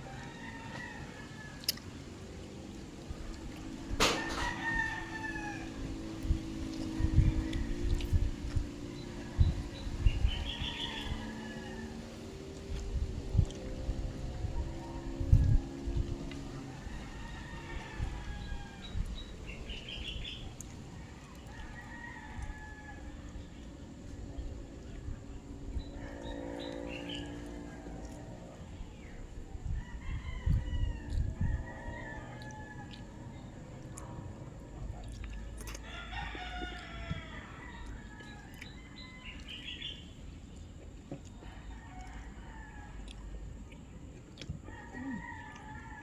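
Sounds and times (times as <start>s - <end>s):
rooster crowing: 0.0s - 1.8s, 4.0s - 12.5s, 14.3s - 20.4s, 21.1s - 23.4s, 29.6s - 33.8s, 35.6s - 40.0s, 44.6s - 46.0s
low steady rumble: 0.0s - 46.0s.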